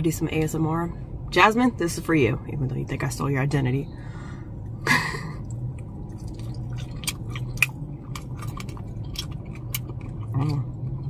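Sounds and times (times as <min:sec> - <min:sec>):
close chewing with crunches: 0:05.4 - 0:11.0.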